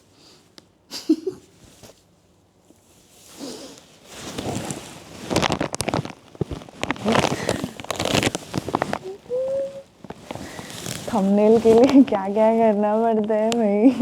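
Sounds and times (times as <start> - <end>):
plastic packaging crinkling: 3.9 - 13.7.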